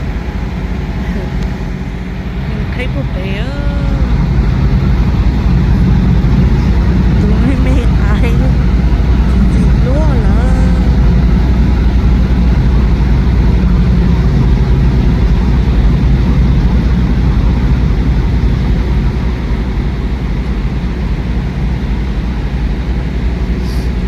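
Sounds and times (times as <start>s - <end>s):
diesel truck engine rumbling: 0.0s - 24.0s.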